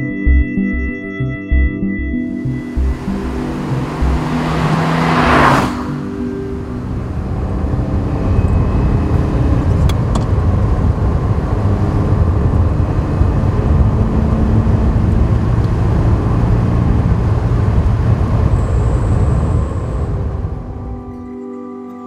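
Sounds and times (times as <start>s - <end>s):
thin high tone: 2.3s - 9.4s
car engine running: 2.4s - 20.6s
wind noise: 2.4s - 21.3s.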